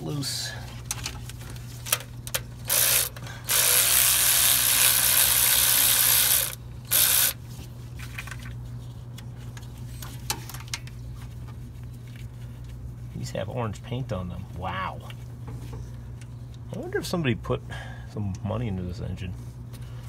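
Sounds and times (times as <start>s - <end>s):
ratchet wrench ratcheting: 2.3s - 7.4s.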